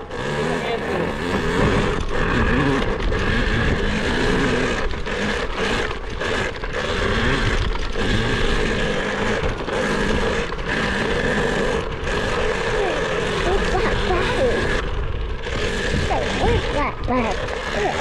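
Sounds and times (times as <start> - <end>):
dirt bike motor whine: 0.0 - 18.0
wind rumble on microphone: 13.3 - 17.6.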